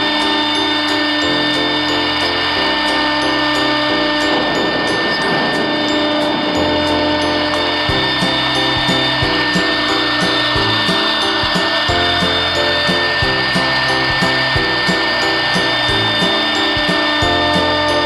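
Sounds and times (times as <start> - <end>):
router spindle whining: 0.0 - 18.0
background music with beat: 6.6 - 18.0.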